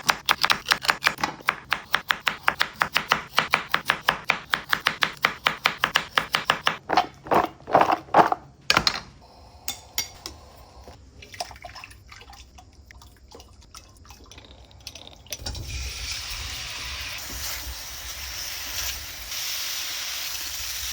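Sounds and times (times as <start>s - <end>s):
knife chopping on cutting board: 0.0s - 7.1s
steady hiss: 15.5s - 20.9s.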